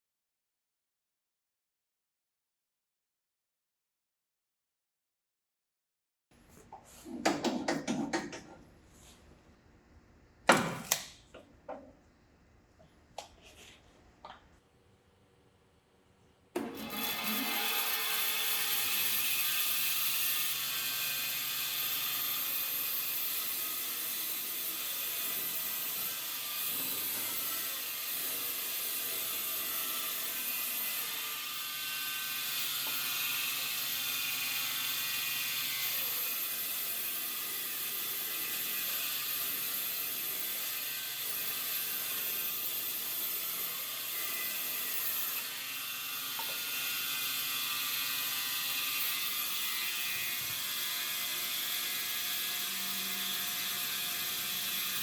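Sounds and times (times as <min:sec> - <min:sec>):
woodworking machine whirring: 0:16.6 - 0:36.7, 0:37.8 - 0:55.0.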